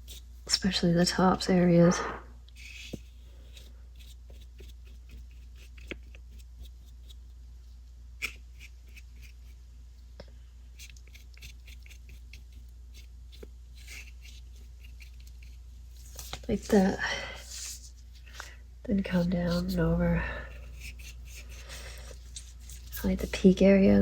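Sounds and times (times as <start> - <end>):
steady low hum: 0.0 - 24.0
paintbrush scratching on paper: 2.5 - 7.3, 10.7 - 18.2, 19.0 - 24.0.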